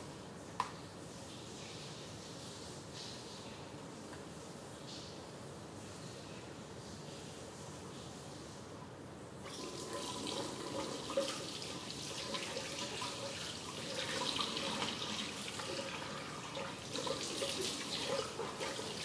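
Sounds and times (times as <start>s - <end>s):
water running from tap into sink: 9.5s - 19.0s.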